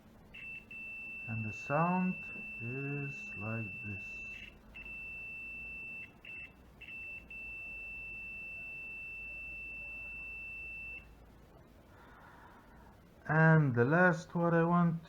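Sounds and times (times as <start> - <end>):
multimeter continuity beep: 0.3 - 11.2.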